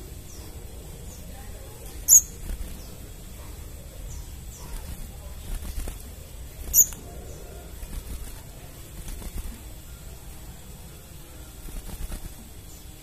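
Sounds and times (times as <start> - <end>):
low steady hum: 0.0 - 13.0
bird sharp high chip: 6.7 - 7.0.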